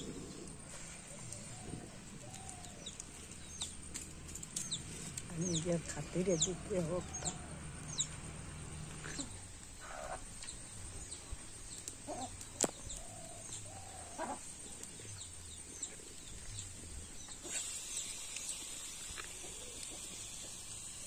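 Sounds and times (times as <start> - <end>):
birds chirping: 0.0 - 18.4
lower bird calls: 5.5 - 18.3.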